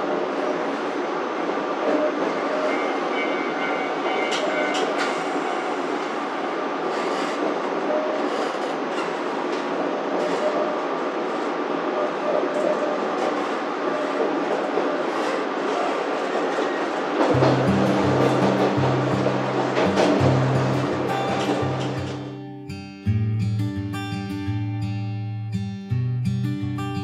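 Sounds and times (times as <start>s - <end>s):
train wheels rumbling on rail: 0.0s - 22.4s
wheels clicking over track: 12.6s - 22.4s.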